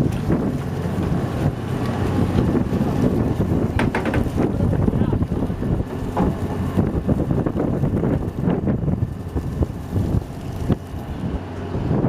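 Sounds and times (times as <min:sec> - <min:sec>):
low rumble of boat and sea: 0:00.0 - 0:12.0
wind buffeting microphone: 0:00.0 - 0:12.0.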